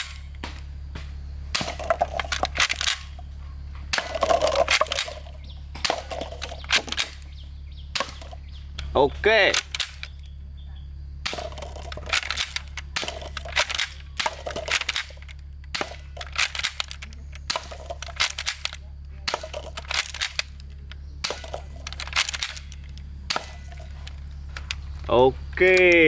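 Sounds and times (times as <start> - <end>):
steady low hum: 0.0 - 26.0
plastic toy parts clicking: 1.6 - 3.2, 4.0 - 7.3, 8.0 - 10.3, 11.3 - 26.0.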